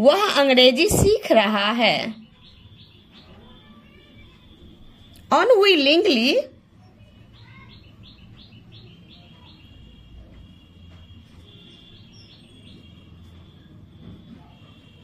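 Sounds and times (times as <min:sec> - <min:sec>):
bird chirping and trilling: 0:02.2 - 0:05.1, 0:06.8 - 0:10.0, 0:11.4 - 0:13.0.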